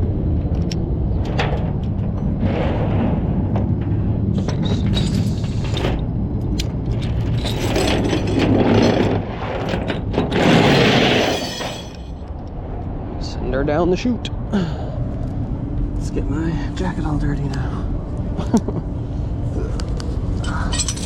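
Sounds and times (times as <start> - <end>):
metal clanks and rattles: 0.6 - 12.3, 20.4 - 21.0.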